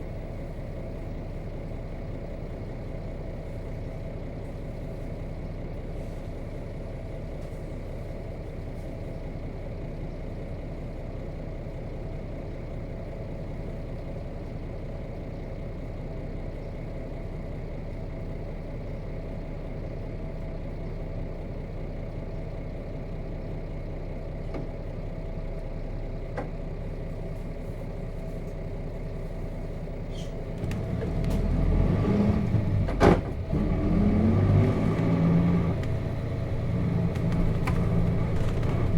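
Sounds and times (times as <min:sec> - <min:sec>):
bus diesel engine idling: 0:00.0 - 0:38.9
bus engine revving: 0:30.1 - 0:38.9.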